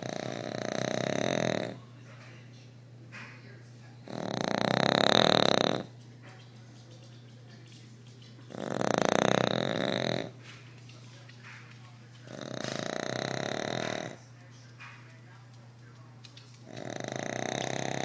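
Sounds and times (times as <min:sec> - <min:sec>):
dog snoring loudly: 0:00.0 - 0:01.8, 0:04.0 - 0:06.0, 0:08.5 - 0:10.5, 0:12.2 - 0:14.2, 0:16.6 - 0:18.0.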